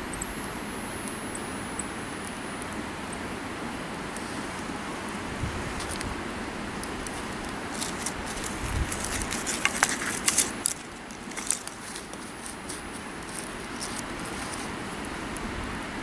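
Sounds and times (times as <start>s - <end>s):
steady hiss: 0.0s - 16.0s
campfire crackling and popping: 5.8s - 15.2s.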